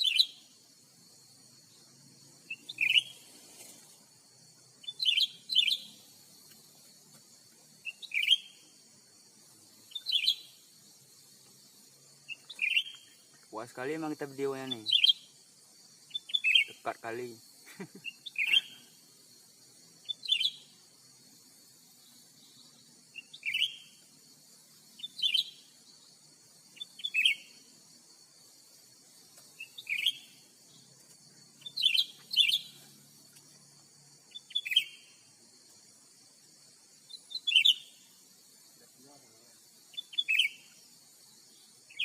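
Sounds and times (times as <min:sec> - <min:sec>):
bird chirping: 0:00.0 - 0:00.5, 0:01.5 - 0:03.3, 0:04.7 - 0:06.9, 0:07.8 - 0:09.2, 0:09.8 - 0:15.4, 0:16.0 - 0:19.0, 0:20.0 - 0:20.9, 0:21.9 - 0:27.8, 0:29.4 - 0:33.5, 0:34.3 - 0:35.3, 0:37.0 - 0:38.2, 0:39.8 - 0:42.0
steady high hiss: 0:00.0 - 0:42.0.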